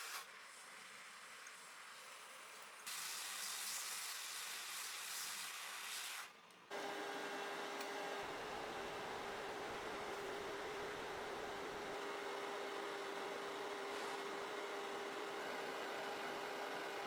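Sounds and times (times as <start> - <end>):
hot air blower hiss: 0.0 - 0.3.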